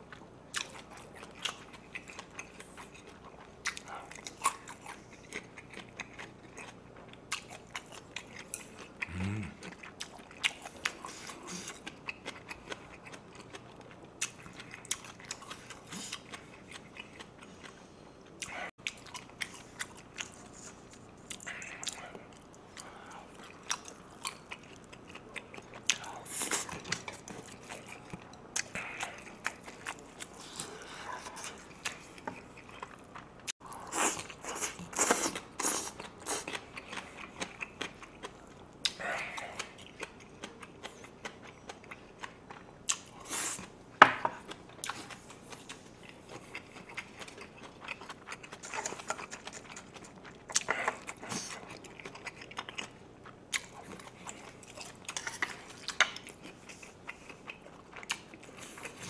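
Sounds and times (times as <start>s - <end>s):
person chewing and crunching food: 0.0s - 59.0s.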